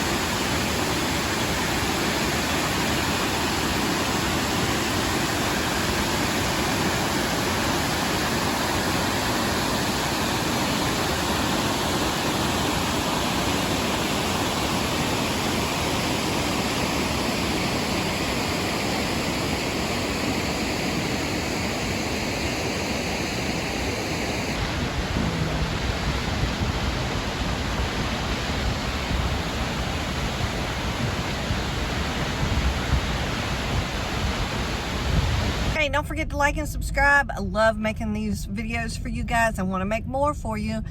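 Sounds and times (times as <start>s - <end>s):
waterfall rushing: 0.0s - 35.8s
low water rumbling: 24.4s - 37.2s.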